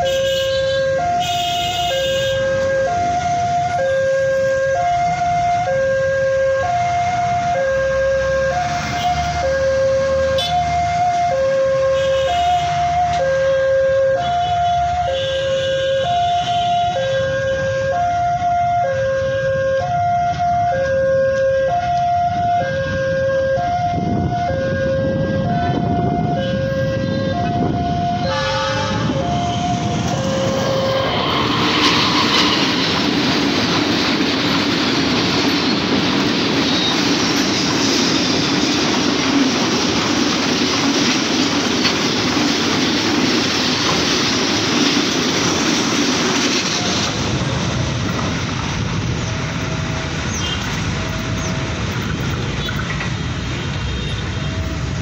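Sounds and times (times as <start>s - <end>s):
two-tone crossing alarm: 0.0s - 33.4s, 46.6s - 55.0s
freight train wheels rattling on rails: 25.0s - 55.0s.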